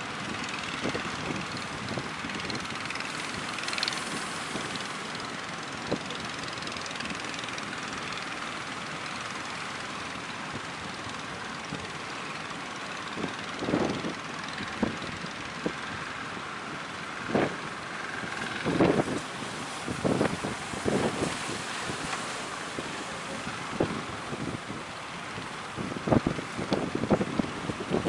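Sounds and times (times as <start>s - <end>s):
wind on microphone: 0.0s - 4.9s, 17.2s - 28.0s
boat engines droning: 0.0s - 28.0s.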